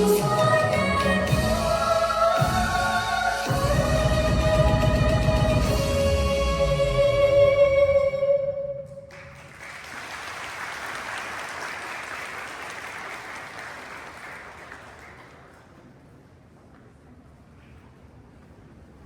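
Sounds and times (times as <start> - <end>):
audience applauding: 9.1 - 15.8.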